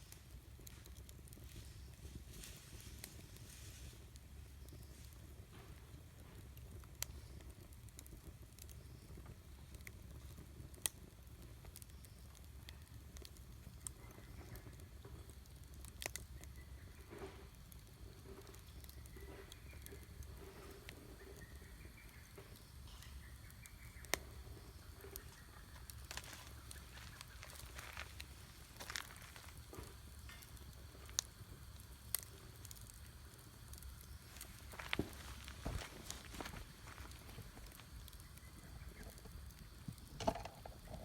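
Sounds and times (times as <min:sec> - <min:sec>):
campfire crackling: 0:00.0 - 0:41.0
faint wavering hiss: 0:00.0 - 0:41.0
sharp fire pops: 0:17.2 - 0:41.0.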